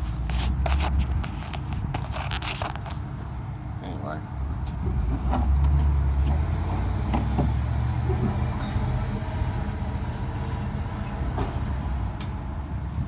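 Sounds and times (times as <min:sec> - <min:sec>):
road traffic rumble: 0:00.0 - 0:13.0
vehicle passing: 0:04.7 - 0:12.9.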